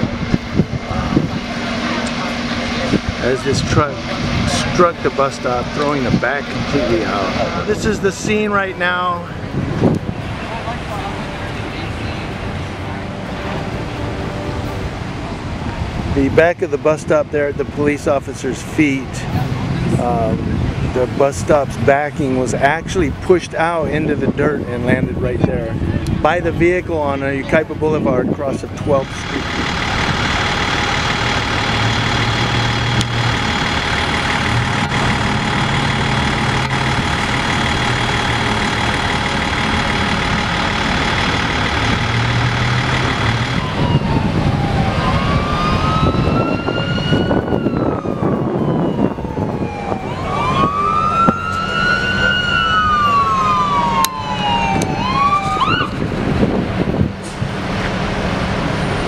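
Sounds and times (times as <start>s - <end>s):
ambulance siren wailing: 0.0s - 15.9s, 28.2s - 57.0s
large vehicle engine running: 0.0s - 59.0s.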